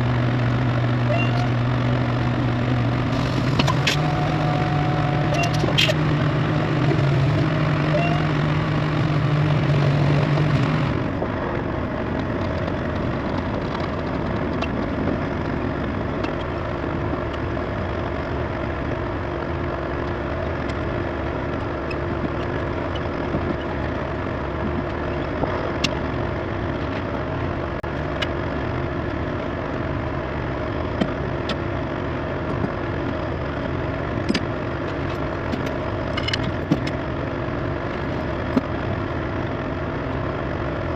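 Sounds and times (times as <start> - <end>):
deep steady drone: 0.0 - 40.9
diesel engine idling: 0.0 - 40.9.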